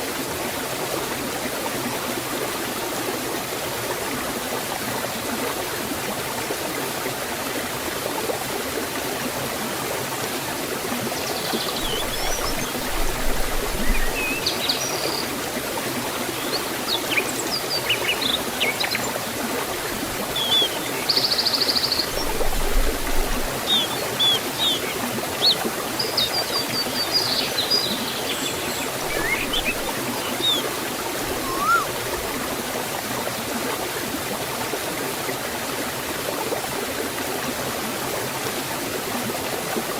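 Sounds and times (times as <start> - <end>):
forest stream flowing: 0.0 - 39.9
birds chirping and trilling: 11.2 - 15.3, 20.3 - 32.0
buzzy bird trill: 29.0 - 30.7, 31.3 - 31.9
rising whistle: 31.3 - 31.9.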